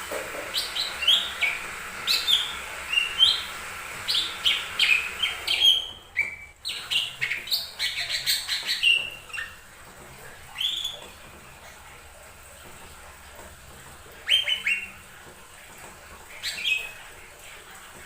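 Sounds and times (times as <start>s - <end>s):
bird chirping song: 4.1s - 9.6s.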